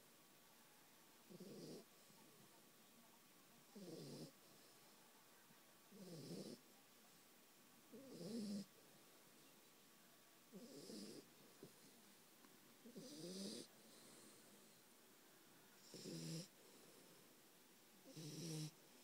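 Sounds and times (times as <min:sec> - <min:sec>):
dog snoring: 0:01.3 - 0:01.9, 0:03.8 - 0:04.4, 0:05.9 - 0:06.6, 0:07.9 - 0:08.7, 0:10.5 - 0:11.8, 0:12.8 - 0:14.8, 0:15.8 - 0:17.0, 0:18.0 - 0:18.8.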